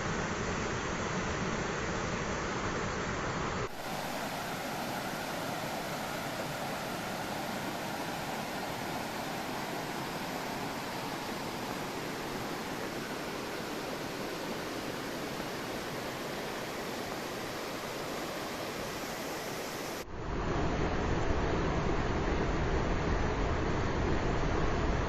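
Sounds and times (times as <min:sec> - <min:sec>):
river water rushing over rocks: 0:03.6 - 0:20.0.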